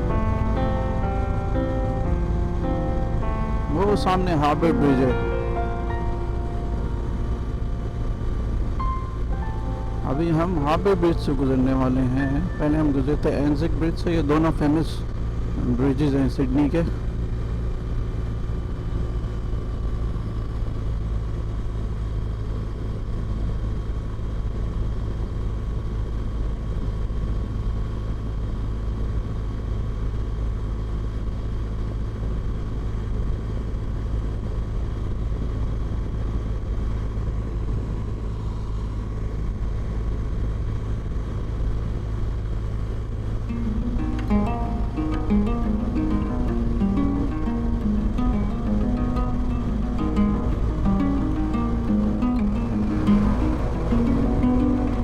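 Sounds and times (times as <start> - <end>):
faint even tones: 0.0 - 14.7, 43.4 - 55.0
motorcycle engine and road rumble: 0.0 - 55.0.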